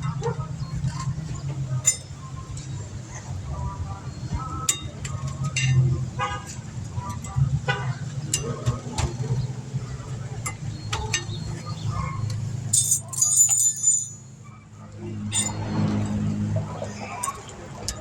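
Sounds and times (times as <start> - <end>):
metal tools clinking and knocking: 12.7 - 14.3, 15.3 - 16.2
ringing metallic clang: 12.7 - 14.3.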